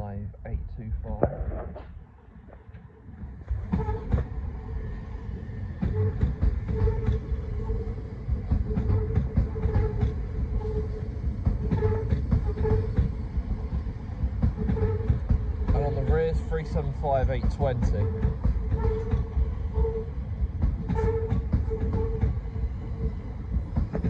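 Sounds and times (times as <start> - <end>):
train bogies rumbling: 0.8 - 24.0
wheels clicking over rail joints: 5.8 - 24.0.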